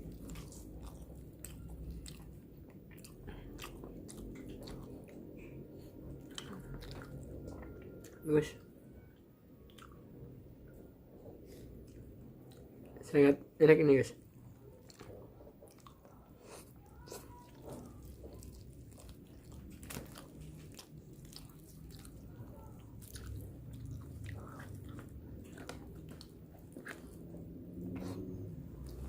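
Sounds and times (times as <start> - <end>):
close chewing and biting: 0.0 - 8.4, 14.3 - 29.0.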